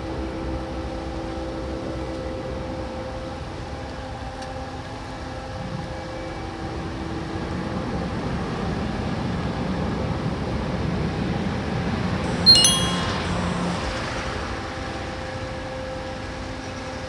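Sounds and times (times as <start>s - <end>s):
short high ringing: 12.3s - 14.6s.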